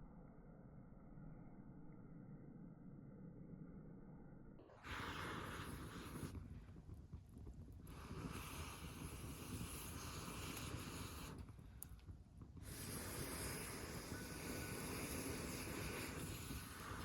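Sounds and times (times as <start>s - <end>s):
campfire hissing and rumbling: 4.8s - 17.0s.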